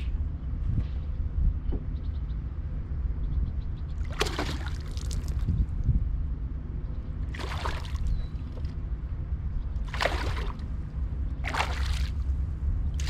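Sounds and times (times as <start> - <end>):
low rumble: 0.0 - 13.0
fish splashing water: 4.0 - 5.4, 7.3 - 8.7, 9.8 - 10.8, 11.4 - 12.4.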